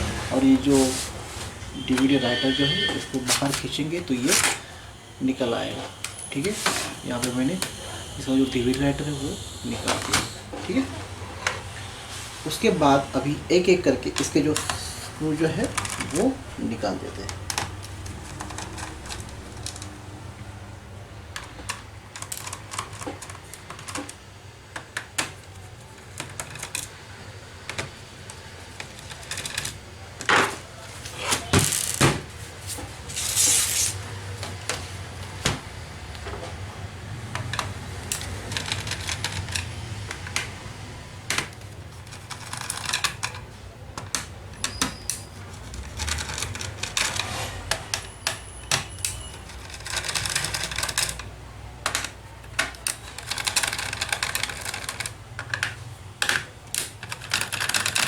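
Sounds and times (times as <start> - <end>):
plastic clacks: 37.2 - 40.6, 41.2 - 58.0.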